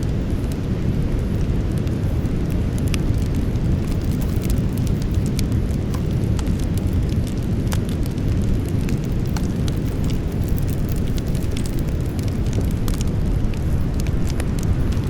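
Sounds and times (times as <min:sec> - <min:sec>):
campfire crackling and popping: 0:00.0 - 0:15.0
low fire rumble: 0:00.0 - 0:15.0.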